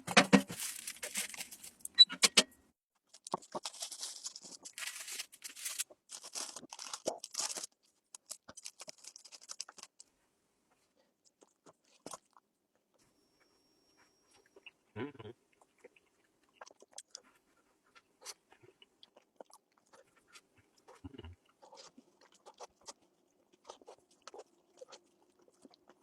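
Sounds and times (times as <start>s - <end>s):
crunching and crackling: 0.0s - 2.0s, 3.1s - 10.1s.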